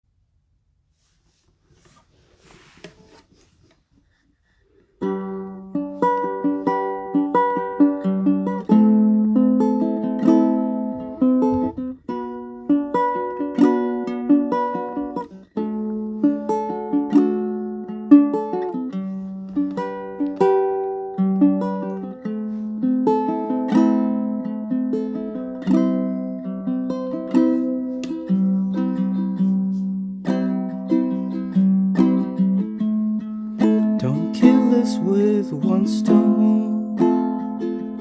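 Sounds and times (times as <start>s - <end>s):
faint rustle: 0.8s - 5.1s
plucked string instrument: 5.0s - 38.0s.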